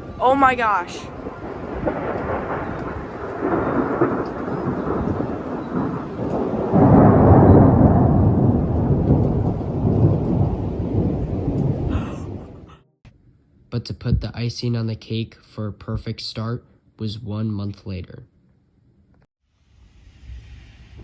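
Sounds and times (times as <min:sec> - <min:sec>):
thunder rumbling: 0:00.0 - 0:12.8
steady rain: 0:01.0 - 0:12.7.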